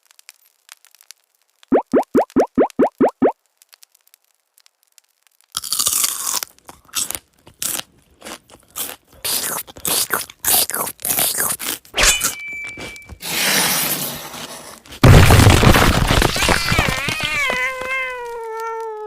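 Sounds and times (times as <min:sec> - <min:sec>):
crunching and scraping: 0:05.5 - 0:18.9.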